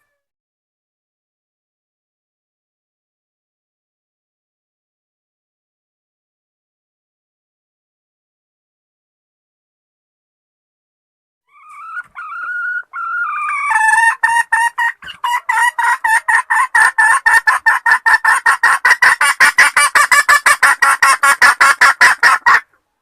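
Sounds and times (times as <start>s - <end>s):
hen clucking rapidly: 11.5s - 22.8s
junglefowl hen calling: 11.5s - 22.9s.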